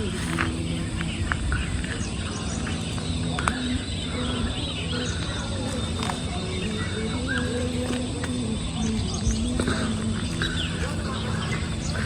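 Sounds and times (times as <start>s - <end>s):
birds chirping: 0.0s - 12.0s
insects: 0.0s - 12.0s
low steady hum: 0.0s - 12.0s.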